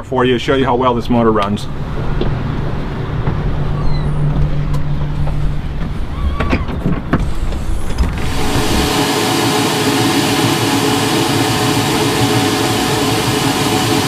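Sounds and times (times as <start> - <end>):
low engine rumble: 0.0 - 13.7
loud rushing noise: 7.1 - 14.0.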